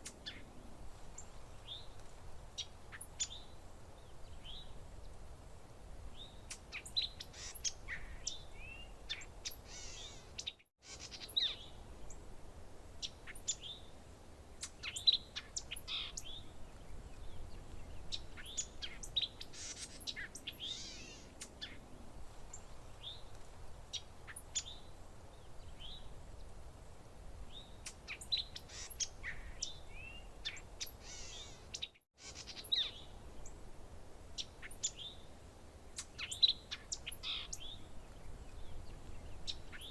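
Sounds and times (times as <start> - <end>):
faint low hiss: 0.0 - 39.9
birds chirping and trilling: 6.2 - 12.2, 14.6 - 21.8, 27.5 - 33.6, 35.9 - 39.9.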